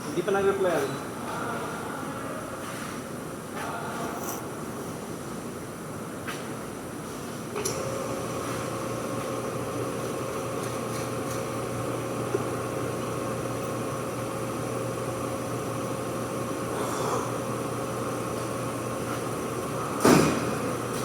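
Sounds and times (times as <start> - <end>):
brake lathe hum: 7.6 - 21.0.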